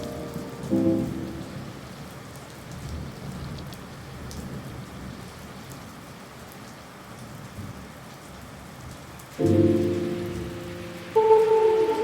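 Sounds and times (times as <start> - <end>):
rain falling: 0.0 - 12.0
distant thunder: 9.4 - 12.0.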